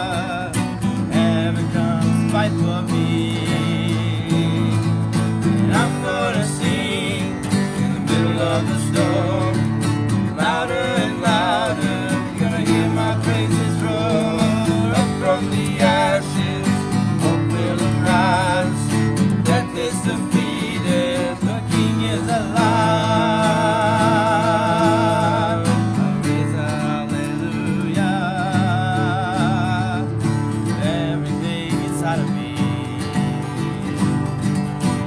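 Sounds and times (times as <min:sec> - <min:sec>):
acoustic guitar strumming: 0:00.0 - 0:35.0
person singing: 0:05.7 - 0:30.1.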